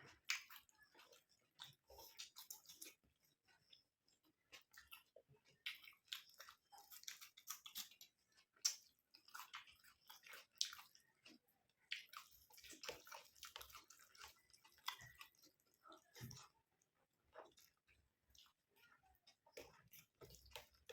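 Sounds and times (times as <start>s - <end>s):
person chewing food: 0.0s - 20.9s.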